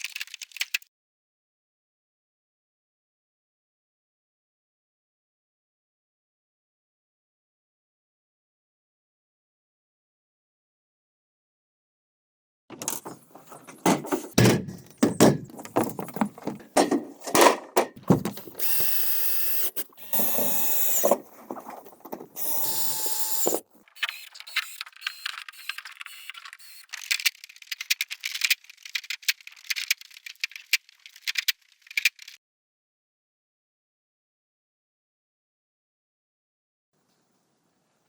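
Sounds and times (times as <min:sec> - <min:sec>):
power drill: 0:18.4 - 0:21.3, 0:22.4 - 0:26.9.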